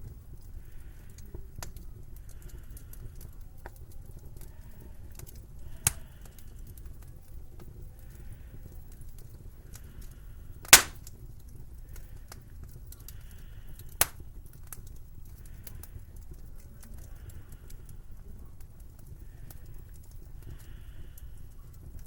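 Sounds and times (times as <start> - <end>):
loud sharp crack: 10.7 - 11.0.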